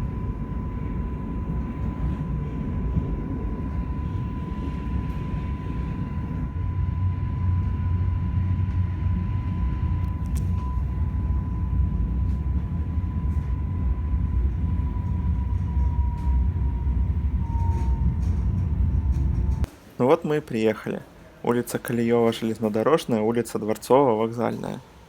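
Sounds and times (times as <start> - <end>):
electric train running: 0.0 - 19.7
high whine: 0.0 - 23.2.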